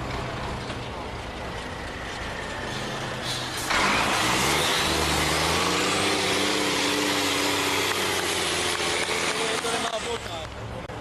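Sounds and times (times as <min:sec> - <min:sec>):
diesel truck engine revving: 0:02.4 - 0:10.2.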